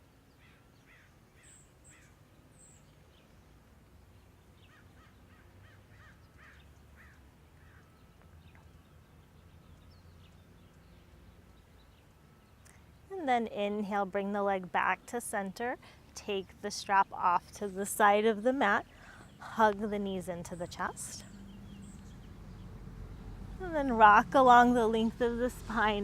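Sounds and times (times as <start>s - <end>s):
faint bird calls: 0.4s - 2.9s, 4.6s - 8.7s.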